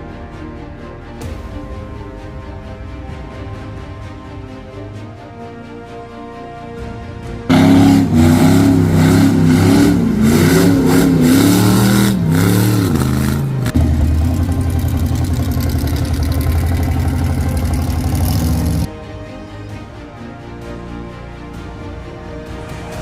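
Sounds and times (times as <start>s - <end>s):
truck engine revving: 7.5s - 18.9s.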